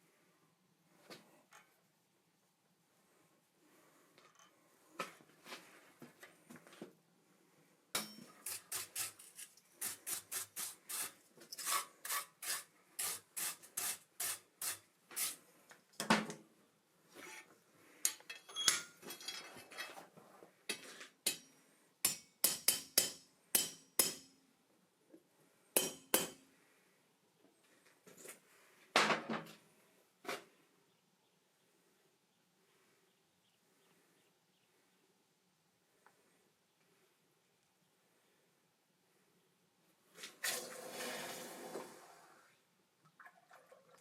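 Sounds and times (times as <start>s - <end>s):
hammer striking iron anvil: 22.1s - 24.3s, 25.8s - 26.4s.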